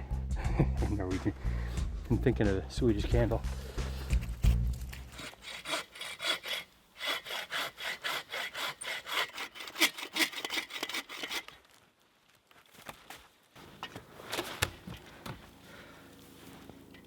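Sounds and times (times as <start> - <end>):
hand saw cutting log: 4.2 - 11.6.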